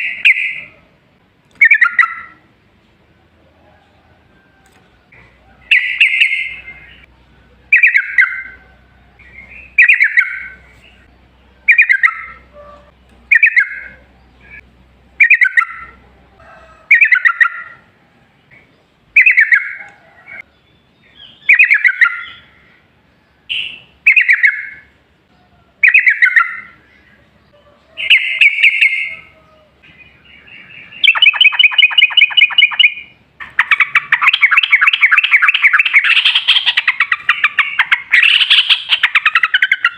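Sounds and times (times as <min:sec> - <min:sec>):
bulbul singing: 0:00.0 - 0:00.8, 0:01.5 - 0:02.7, 0:05.1 - 0:16.2, 0:16.9 - 0:39.9
bird trilling rapidly: 0:01.6 - 0:02.4, 0:05.6 - 0:07.1, 0:07.7 - 0:08.6, 0:09.2 - 0:14.6, 0:15.2 - 0:16.0, 0:16.9 - 0:17.8, 0:19.2 - 0:20.4, 0:21.1 - 0:22.7, 0:23.5 - 0:24.9, 0:25.8 - 0:26.8, 0:27.9 - 0:29.4, 0:30.1 - 0:39.9.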